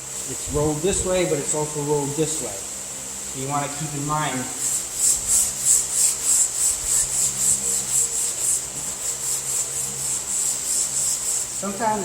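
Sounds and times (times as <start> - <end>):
sandpaper scrubbing back and forth: 3.5 - 12.0.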